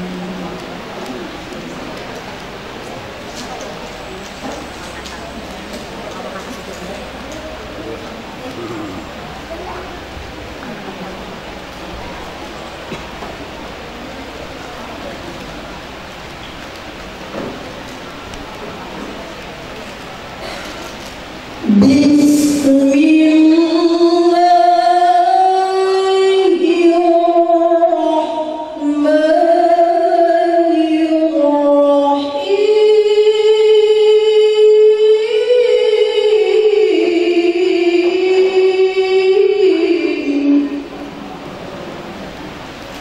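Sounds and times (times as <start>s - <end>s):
woman reciting melodically: 20.2s - 41.2s.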